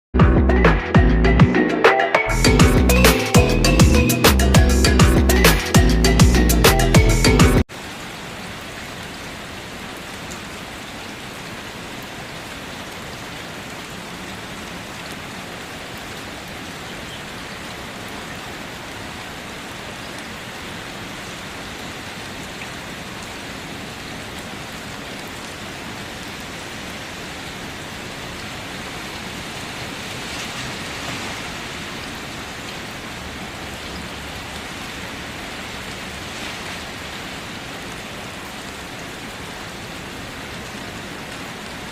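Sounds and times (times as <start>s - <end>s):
steady rainfall: 1.7s - 41.9s.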